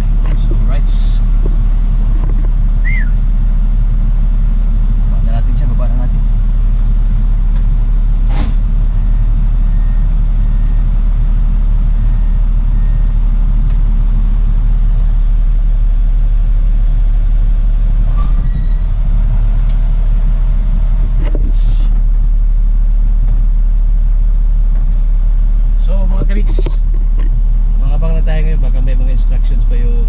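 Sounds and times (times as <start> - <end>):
truck diesel engine rumbling: 0.0 - 30.0
brief hiss: 8.2 - 8.6.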